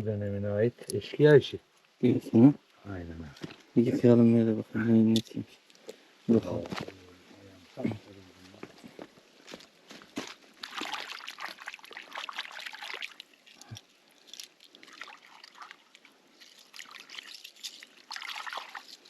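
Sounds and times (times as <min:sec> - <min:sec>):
water trickling and pouring: 0:10.6 - 0:19.0.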